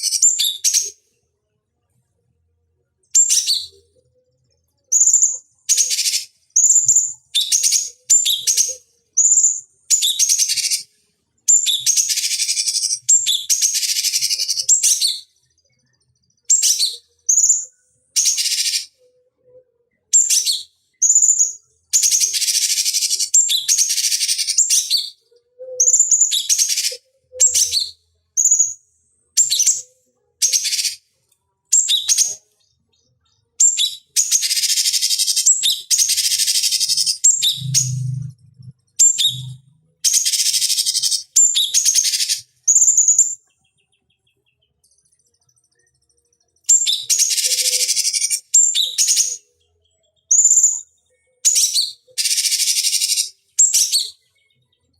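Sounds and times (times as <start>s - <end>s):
bird singing chattering phrases: 20.2s - 28.8s, 33.5s - 38.4s, 39.0s - 44.8s, 46.7s - 54.7s.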